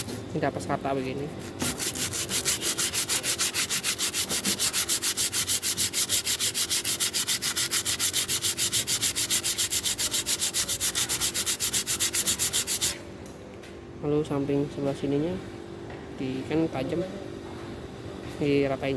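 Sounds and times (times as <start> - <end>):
hand sanding on sandpaper: 0.8 - 13.0.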